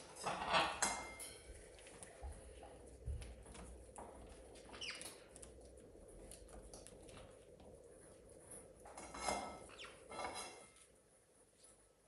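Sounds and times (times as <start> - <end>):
faint clicks and scratches: 0.0 - 12.0.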